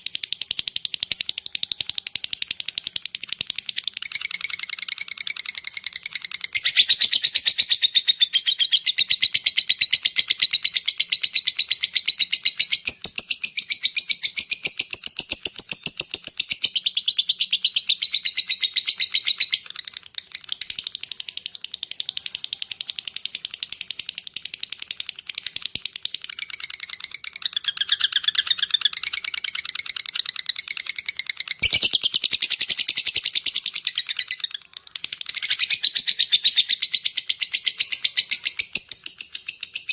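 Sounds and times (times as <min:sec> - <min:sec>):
lovebird chattering call: 0:00.1 - 0:39.9.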